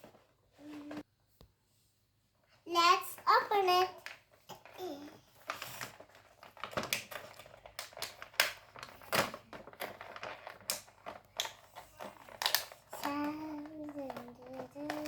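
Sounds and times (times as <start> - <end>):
plastic packaging clicking and crinkling: 3.2 - 15.0.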